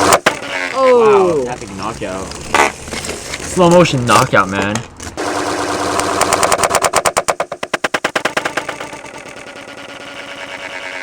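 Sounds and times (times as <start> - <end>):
spinning tops whirring and rattling: 0.0 - 2.8, 5.2 - 11.0.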